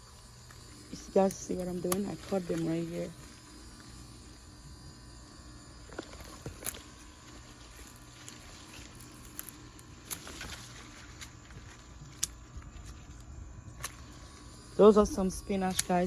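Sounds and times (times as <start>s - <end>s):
plant stems being snipped: 1.0s - 2.8s, 6.2s - 7.1s, 7.7s - 13.0s, 15.5s - 16.0s.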